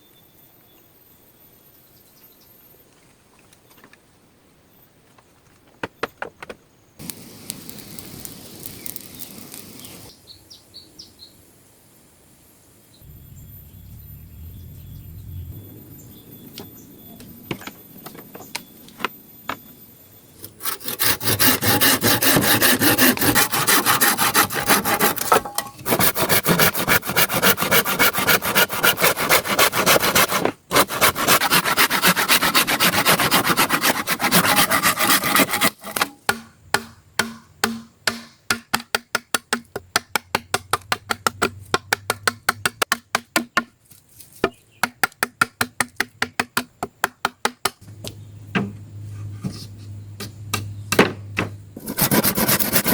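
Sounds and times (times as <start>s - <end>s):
hand saw cutting wood: 20.6s - 36.2s, 51.8s - 52.9s.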